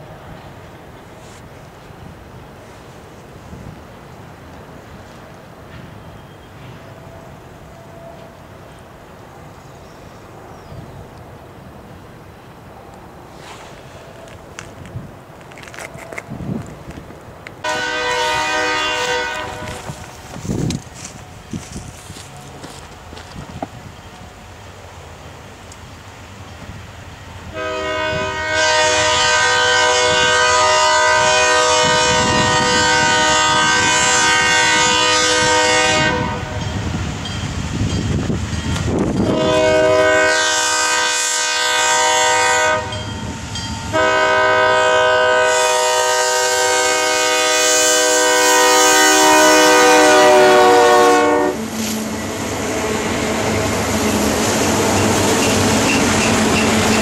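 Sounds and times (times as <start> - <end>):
moving train rumble: 0.0 - 57.0
locomotive air horn blasts: 17.6 - 20.2, 27.5 - 36.6, 39.2 - 43.0, 43.9 - 54.3.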